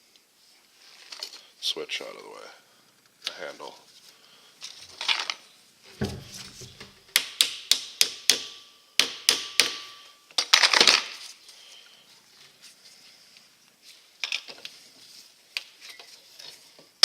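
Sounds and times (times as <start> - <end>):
hammer taps on metal: 6.0 - 6.9.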